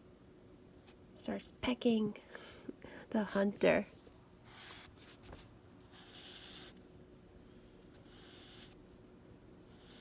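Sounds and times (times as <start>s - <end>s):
scratchy drawing strokes on paper: 4.5s - 5.2s, 5.8s - 6.8s, 7.9s - 8.8s, 9.6s - 10.0s.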